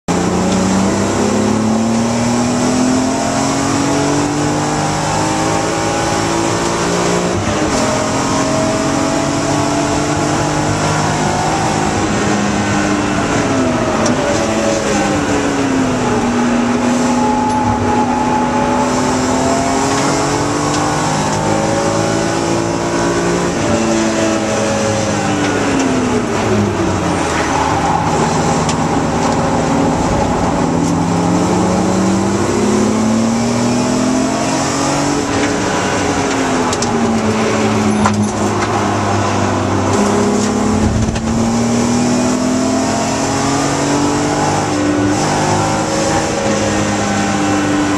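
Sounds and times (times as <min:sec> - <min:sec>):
car engine revving: 0:00.1 - 0:47.9
road and wind noise: 0:00.1 - 0:47.9.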